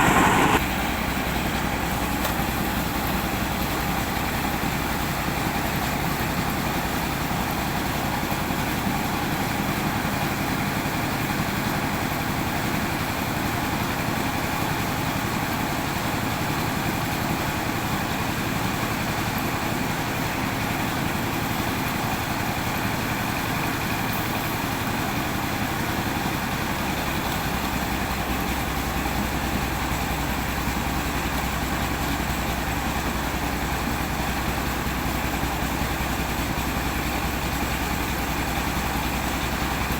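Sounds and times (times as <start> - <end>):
car engine droning: 0.0 - 0.6.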